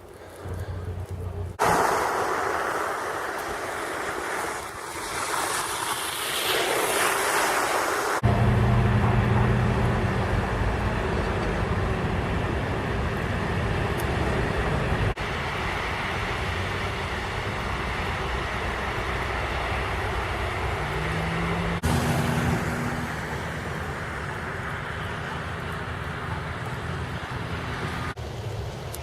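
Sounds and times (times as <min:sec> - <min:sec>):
low engine hum: 0:00.0 - 0:01.6, 0:08.2 - 0:29.0
road traffic rumble: 0:00.0 - 0:29.0.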